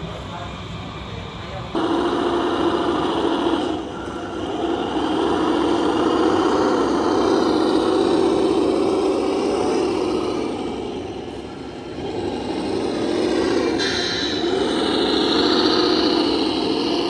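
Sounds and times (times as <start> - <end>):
electric motor and gear whine: 0.0 - 17.0.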